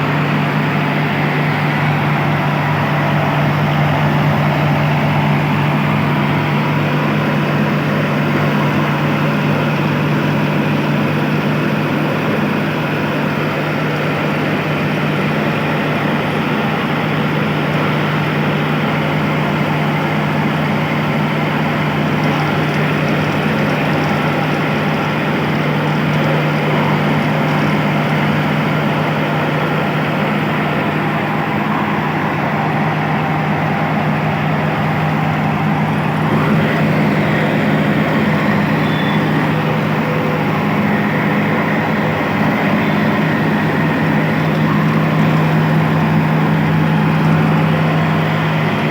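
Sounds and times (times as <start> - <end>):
mill machinery noise: 0.0 - 48.9
tractor engine humming: 0.0 - 48.9.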